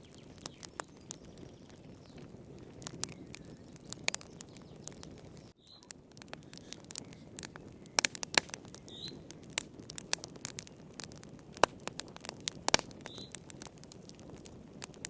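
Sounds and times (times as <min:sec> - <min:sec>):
wood fire crackling: 0:00.0 - 0:15.0
hiss of flames: 0:06.2 - 0:14.9.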